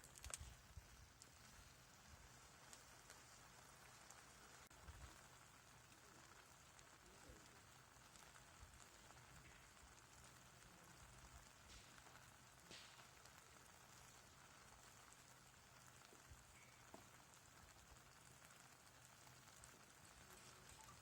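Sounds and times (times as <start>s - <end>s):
small ticks: 0.0s - 0.6s
faint steady hiss: 0.0s - 21.0s.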